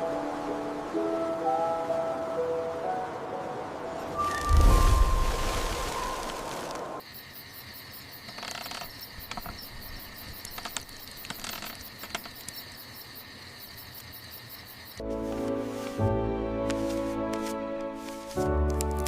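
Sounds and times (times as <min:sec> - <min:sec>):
soft music: 0:00.0 - 0:07.0, 0:15.0 - 0:19.0
faint clicks: 0:08.3 - 0:12.6.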